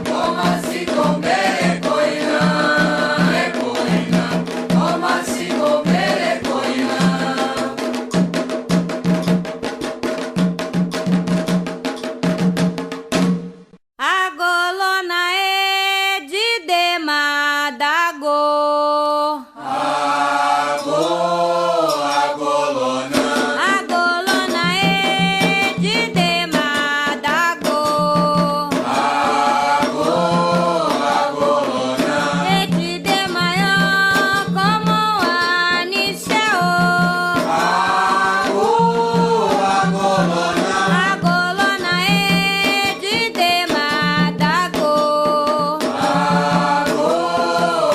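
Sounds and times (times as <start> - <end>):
group of voices singing: 0.0 - 8.0, 19.3 - 44.5, 45.8 - 47.9
drums beating: 0.0 - 13.8, 23.1 - 47.9
person chanting: 19.3 - 23.2, 28.8 - 33.0.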